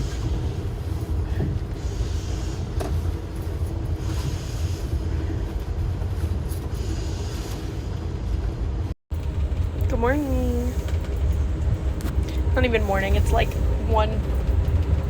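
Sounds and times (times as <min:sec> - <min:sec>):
hissing from train: 0:00.0 - 0:05.5, 0:06.6 - 0:08.1
train rumbling: 0:00.0 - 0:15.0.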